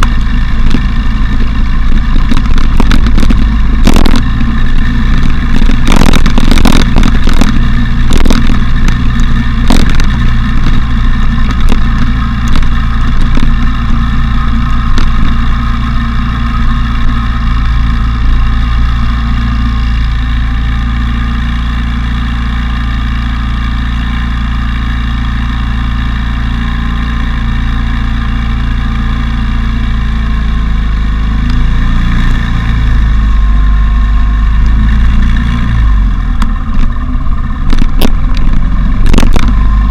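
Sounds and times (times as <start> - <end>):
wind rumble on microphone: 0.0 - 21.3, 31.3 - 39.9
motorcycle engine running: 0.0 - 39.9.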